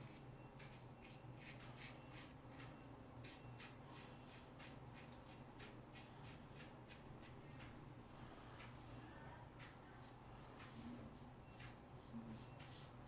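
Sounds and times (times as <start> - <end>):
razor scraping stubble: 0.0 - 7.8.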